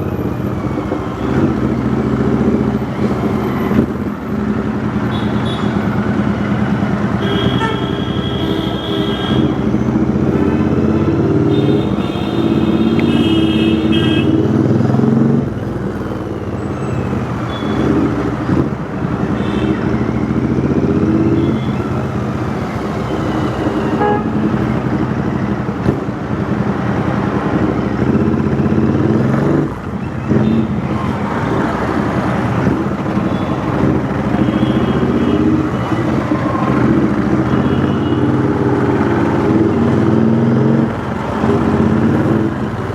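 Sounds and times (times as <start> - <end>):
vehicle horn: 5.1 - 5.8, 7.2 - 9.6, 11.5 - 14.5, 23.9 - 24.6, 33.2 - 35.6.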